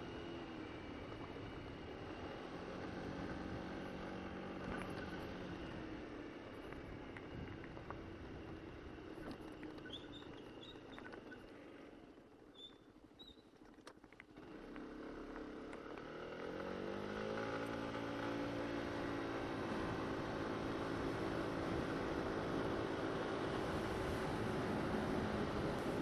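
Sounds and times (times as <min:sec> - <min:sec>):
faint high chirps: 0:12.5 - 0:13.5
scooter engine pulling away: 0:14.4 - 0:26.0.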